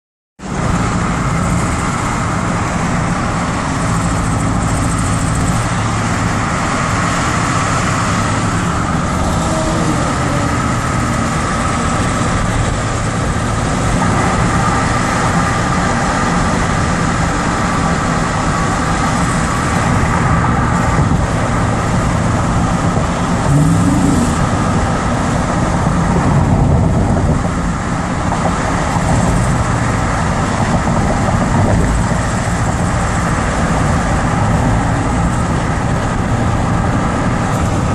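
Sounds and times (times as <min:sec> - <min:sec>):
car engine running: 0:00.4 - 0:37.9.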